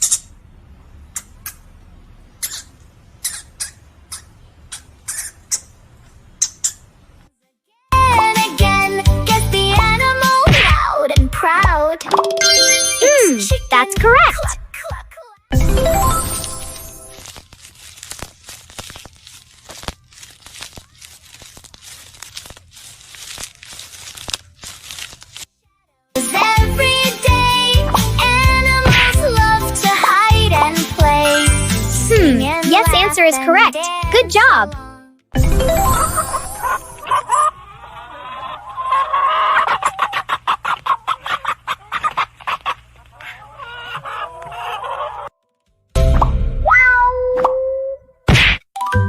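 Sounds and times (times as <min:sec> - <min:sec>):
plastic bags crinkling: 0:16.2 - 0:25.6
chicken calling: 0:36.6 - 0:45.4
chicken clucking: 0:37.0 - 0:45.3.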